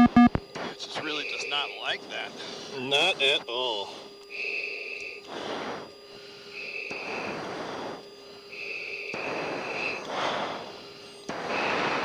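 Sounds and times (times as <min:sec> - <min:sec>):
high electronic tone: 0:00.0 - 0:00.4.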